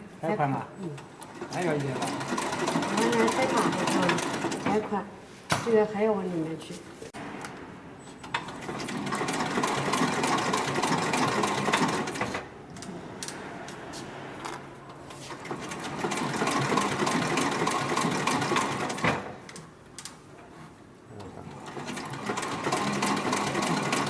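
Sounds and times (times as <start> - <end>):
sewing machine stitching leather: 1.2 - 4.8, 8.3 - 13.4, 15.3 - 19.4, 21.5 - 24.0.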